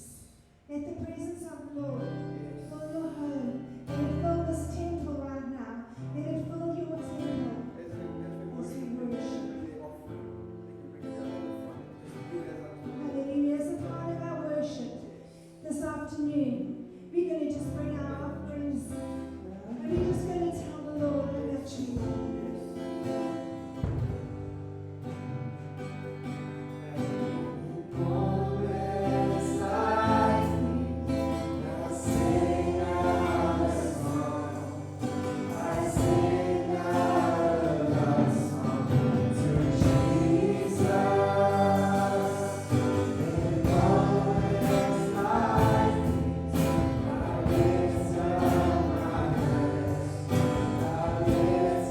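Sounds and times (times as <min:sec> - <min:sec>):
gospel choir singing with band: 0:27.1 - 0:51.9.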